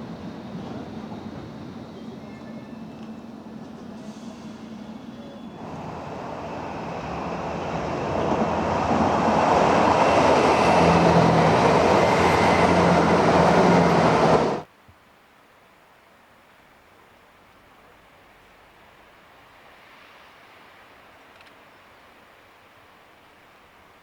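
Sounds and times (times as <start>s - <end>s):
train rumbling past: 0.0s - 14.7s.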